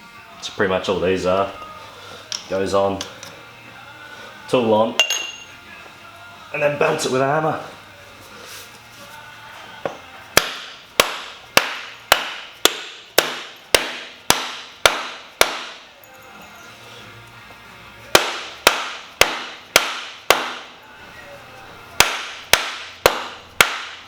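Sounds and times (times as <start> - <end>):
hammer striking metal tool: 5.0 - 5.5, 9.9 - 15.8, 18.2 - 20.7, 22.0 - 24.0.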